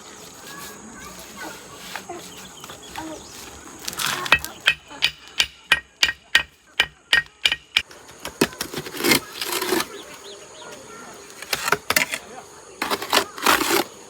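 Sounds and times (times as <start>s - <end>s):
soft scraping and rustling: 0.0s - 4.6s, 8.0s - 14.0s
sharp ringing knocks: 4.3s - 7.9s.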